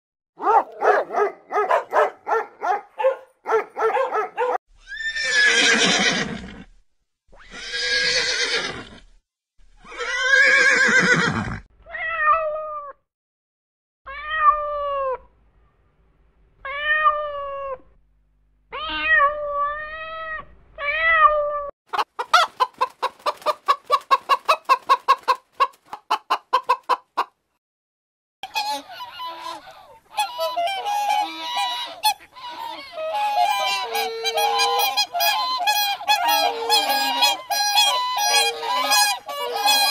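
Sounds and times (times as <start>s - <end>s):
animal yapping: 0.4s - 4.6s
cat meowing: 18.7s - 21.7s
long harsh animal calls: 28.6s - 39.9s
honking: 30.1s - 39.9s.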